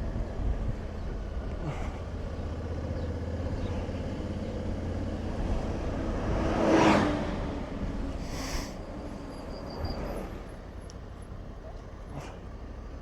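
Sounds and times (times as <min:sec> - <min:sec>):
vehicle passing by: 0:01.7 - 0:10.8.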